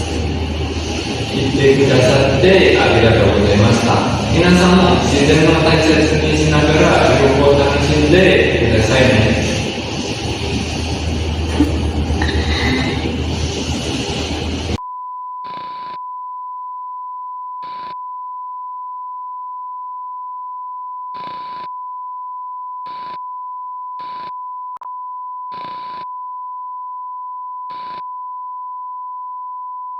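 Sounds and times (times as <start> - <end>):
loud noisy sound: 0.0 - 14.8.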